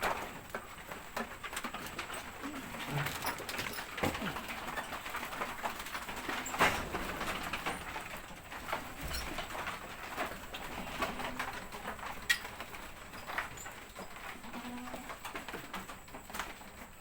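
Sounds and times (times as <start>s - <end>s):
bird cooing: 2.4s - 3.2s.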